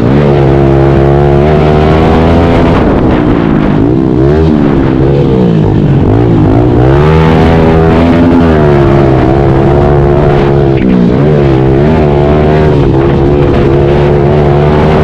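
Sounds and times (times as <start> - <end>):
pit bike engine revving: 0.0 - 15.0.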